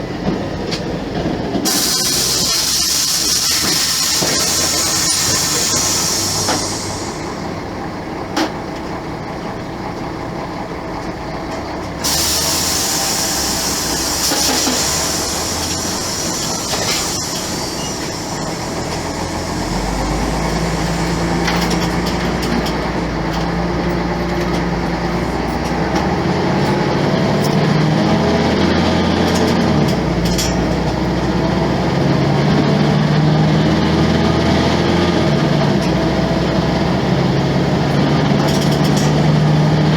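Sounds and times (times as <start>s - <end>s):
diesel bus engine revving: 0.0s - 39.9s
air hiss: 1.7s - 7.8s, 12.0s - 22.2s.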